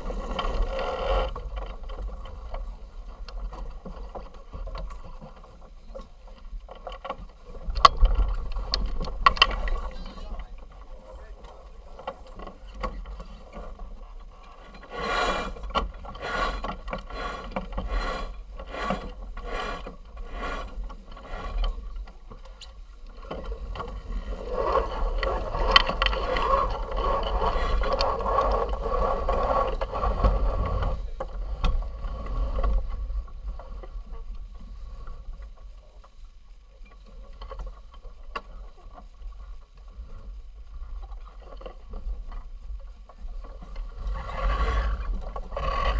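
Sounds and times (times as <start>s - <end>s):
wind rumble on microphone: 0.0s - 45.9s
winch ratcheting: 6.7s - 31.0s
winch grinding: 6.8s - 31.0s.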